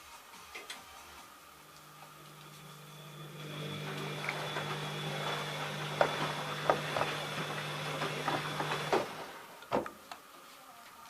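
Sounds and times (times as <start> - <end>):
washing machine humming: 1.4 - 10.3
washing machine clunk: 3.4 - 10.0
washing machine clicks and knocks: 3.8 - 10.0.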